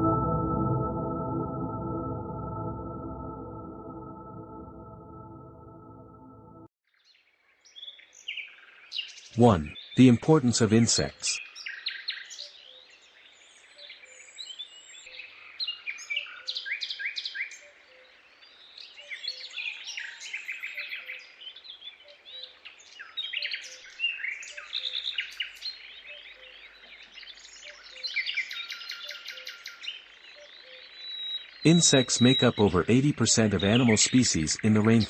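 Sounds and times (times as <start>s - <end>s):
faint low repeating note: 0.0s - 6.7s.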